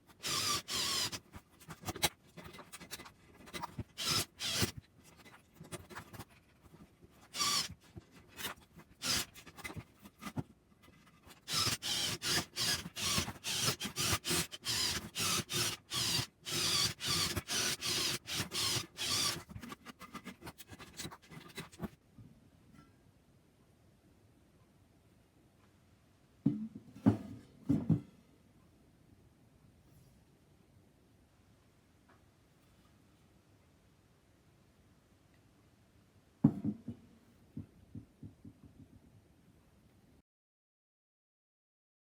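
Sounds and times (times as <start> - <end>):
hand tool scraping: 11.2 - 21.9.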